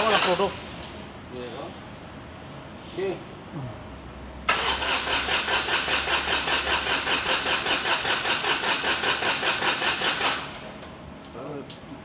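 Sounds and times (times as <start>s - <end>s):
starter motor cranking diesel engine: 0.0s - 0.9s, 4.5s - 10.8s.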